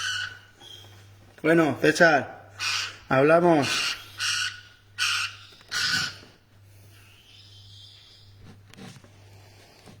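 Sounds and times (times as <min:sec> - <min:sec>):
parrot squawking: 0:00.0 - 0:01.0, 0:02.5 - 0:06.3.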